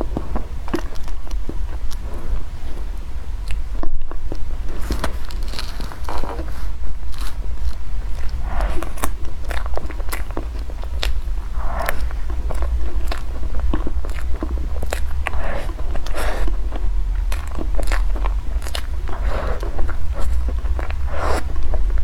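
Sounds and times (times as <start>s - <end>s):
person biting and chewing food: 0.0s - 22.0s
steady low hum: 0.0s - 22.0s
wet mouth sounds: 3.4s - 22.0s.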